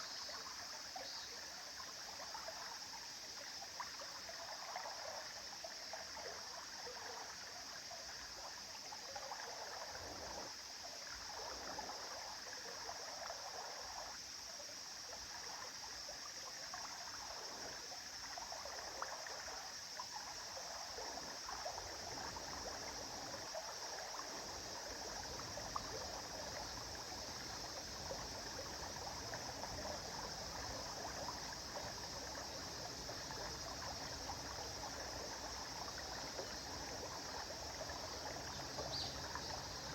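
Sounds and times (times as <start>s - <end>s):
small water splashes: 15.1s - 39.9s
river flowing: 20.4s - 39.9s.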